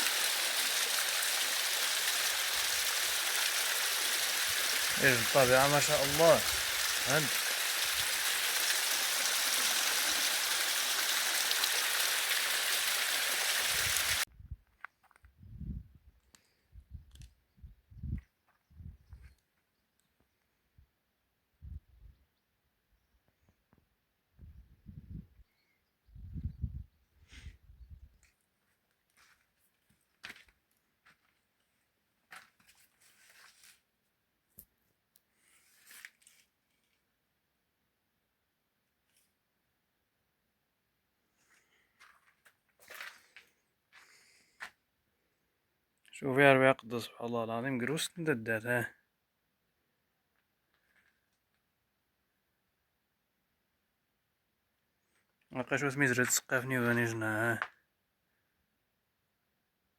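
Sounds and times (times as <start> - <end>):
stream water rushing: 0.0 - 14.3.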